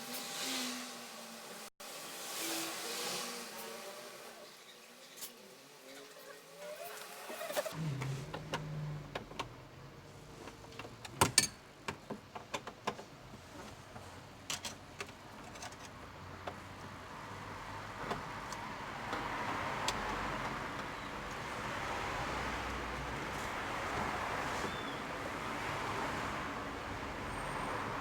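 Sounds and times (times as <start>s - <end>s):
hand tools clicking and knocking: 10.5s - 17.0s.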